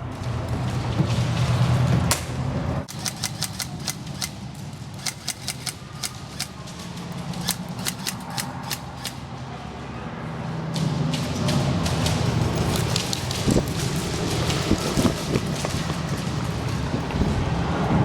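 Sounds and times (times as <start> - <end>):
airsoft guns firing: 2.1 - 9.2.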